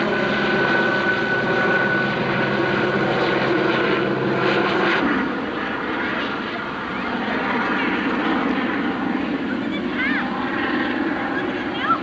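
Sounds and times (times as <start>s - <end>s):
outdoor noise: 0.0s - 12.0s.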